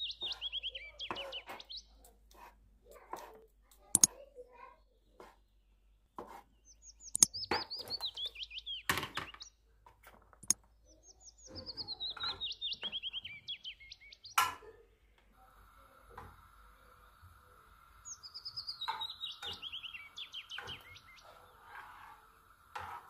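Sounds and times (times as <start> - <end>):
songbird chirping: 0.0 - 3.0, 3.8 - 22.6
metal spoon against frying pan: 3.9 - 4.2, 7.1 - 7.8, 21.6 - 23.0.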